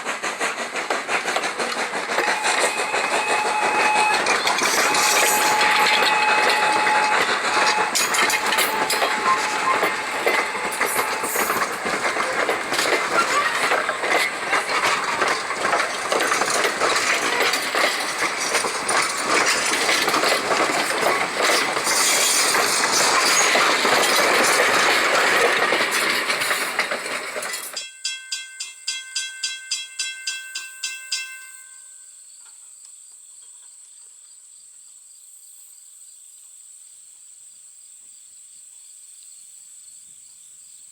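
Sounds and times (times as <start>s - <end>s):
rail clatter: 0.0s - 27.8s
steam train passing: 0.0s - 31.7s.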